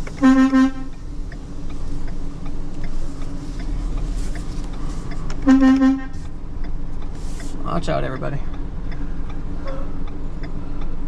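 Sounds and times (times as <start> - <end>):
faint regular ticking: 0.0 - 11.0
vehicle engine running: 0.0 - 11.0
vehicle horn toot: 0.2 - 0.9, 5.4 - 6.2.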